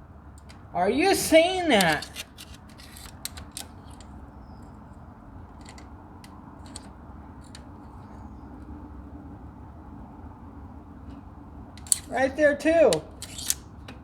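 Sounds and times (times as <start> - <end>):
tool clicking and tapping on engine: 1.7 - 4.2, 5.5 - 8.1, 11.8 - 14.0.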